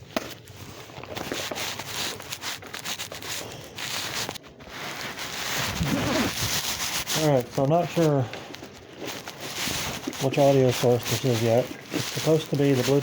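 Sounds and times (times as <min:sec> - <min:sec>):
clothing rustling on microphone: 0:00.4 - 0:13.0.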